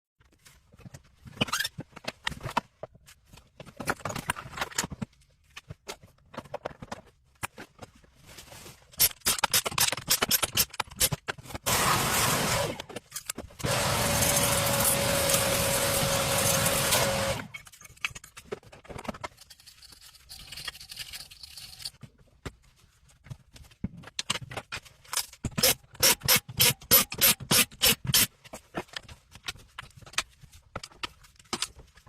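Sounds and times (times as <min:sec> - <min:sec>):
tools and metal parts clattering: 0:00.7 - 0:08.0, 0:12.8 - 0:22.2.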